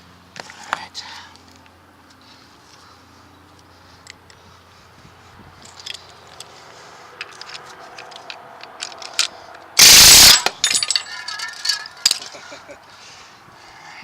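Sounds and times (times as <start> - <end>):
metal tools clicking and scraping: 5.6 - 6.5, 7.2 - 12.5
loud burst of noise: 9.8 - 10.5.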